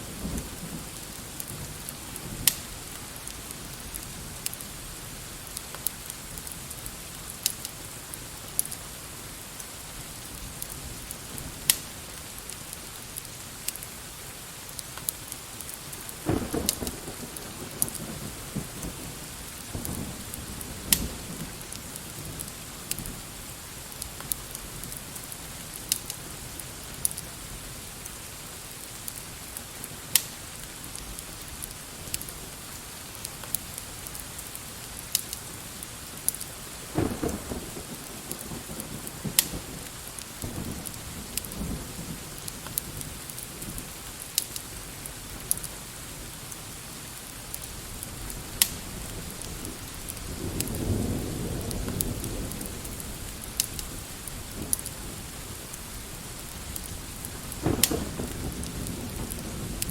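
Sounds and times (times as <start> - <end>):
fire crackling and popping: 0.0 - 59.9
rain hiss: 0.0 - 59.9
thunder rumble: 16.1 - 23.5, 36.8 - 44.0, 47.8 - 59.9.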